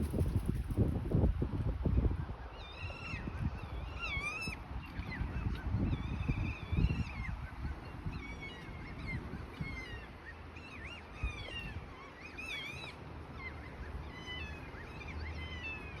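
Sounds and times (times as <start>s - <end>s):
low rumble of wind: 0.0s - 16.0s.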